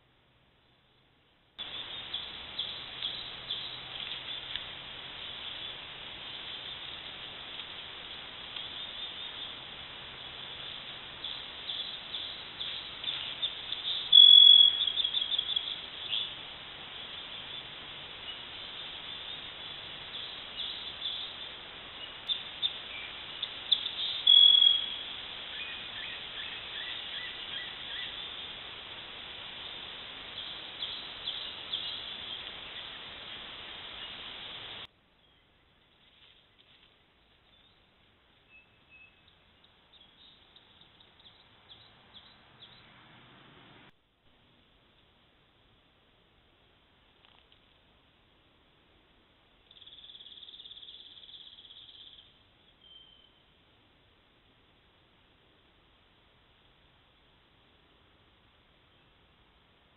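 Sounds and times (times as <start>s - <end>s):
steady microphone hiss: 0.0s - 59.9s
small birds chirping: 1.6s - 7.6s, 8.5s - 28.4s, 29.6s - 34.3s, 35.2s - 43.0s, 49.6s - 53.4s
high bird trills: 11.3s - 16.3s, 22.2s - 28.2s.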